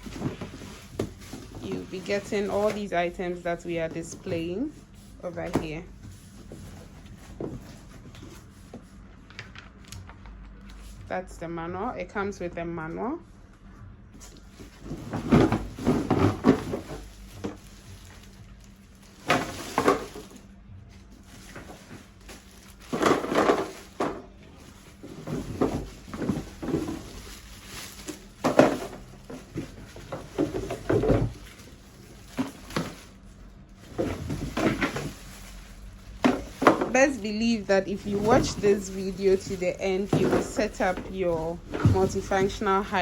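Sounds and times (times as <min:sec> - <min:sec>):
plastic parts knocking and clattering: 0:00.0 - 0:02.8, 0:14.6 - 0:18.3, 0:19.1 - 0:20.4, 0:21.3 - 0:33.2, 0:33.8 - 0:37.2, 0:38.0 - 0:42.9.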